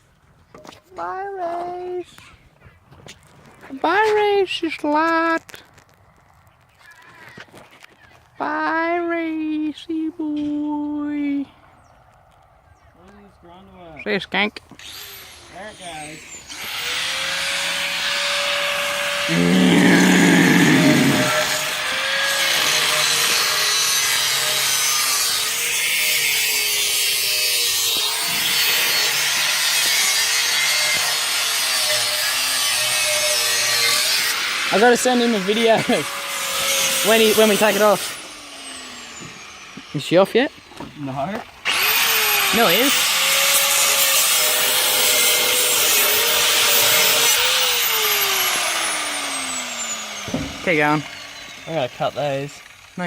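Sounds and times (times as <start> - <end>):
power tool cutting steel pipe: 14.7 - 53.0
grinder motor spinning down: 14.8 - 40.3, 41.6 - 53.0
loud low drone: 19.3 - 21.7.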